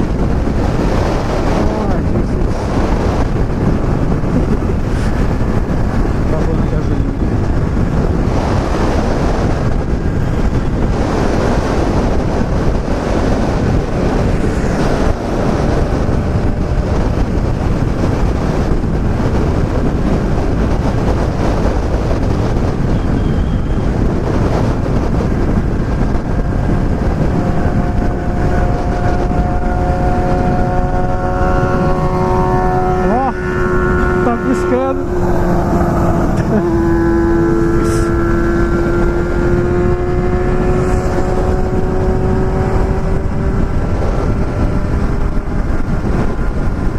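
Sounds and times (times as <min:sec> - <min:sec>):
motorcycle engine running: 0:00.0 - 0:46.9
wind noise on helmet microphone: 0:00.0 - 0:46.9.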